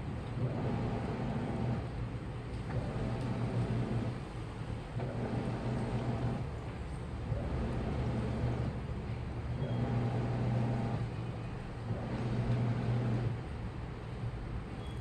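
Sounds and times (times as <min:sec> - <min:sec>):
water and laundry churning: 0:00.0 - 0:14.3
washing machine motor humming: 0:00.1 - 0:13.8.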